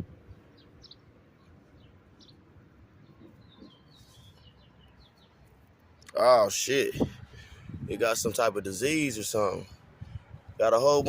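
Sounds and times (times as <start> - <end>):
high bird chirps: 0.3 - 5.5.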